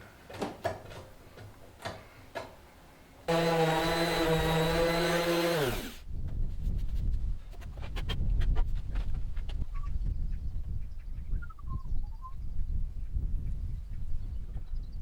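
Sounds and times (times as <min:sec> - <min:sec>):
power tool motor running: 0:03.3 - 0:06.0.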